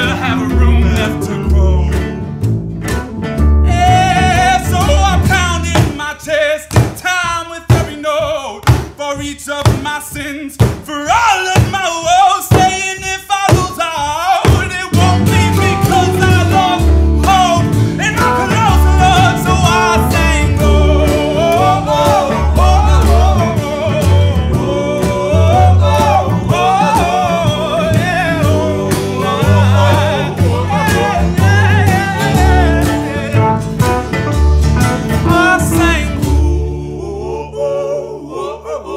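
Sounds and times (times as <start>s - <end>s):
pulsing bass line: 0.0s - 6.0s, 15.0s - 37.0s
drums: 0.0s - 37.2s
guitar: 0.0s - 37.4s
wavering lead melody: 15.3s - 36.6s.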